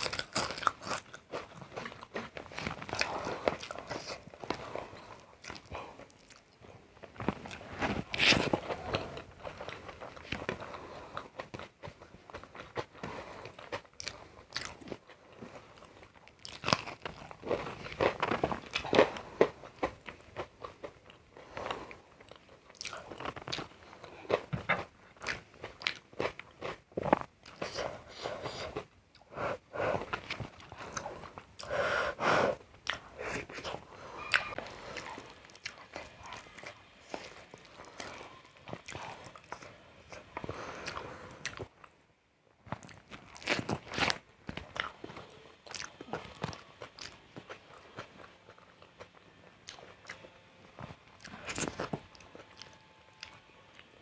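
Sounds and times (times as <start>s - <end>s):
crunchy bites and chewing: 0.0s - 6.5s, 7.2s - 29.3s, 42.6s - 53.9s.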